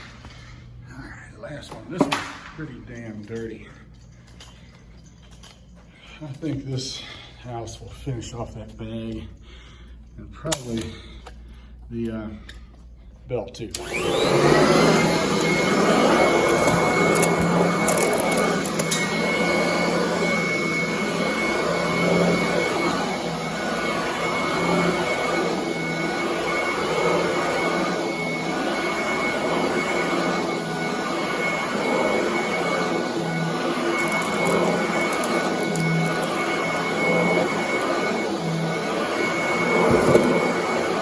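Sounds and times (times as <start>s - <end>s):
vacuum cleaner on carpet: 13.7s - 41.0s.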